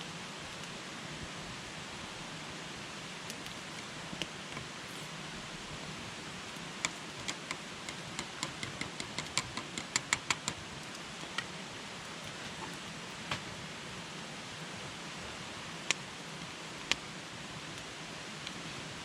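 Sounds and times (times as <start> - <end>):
campfire crackling: 3.0 - 14.3, 15.6 - 19.0
campfire popping: 5.7 - 13.5.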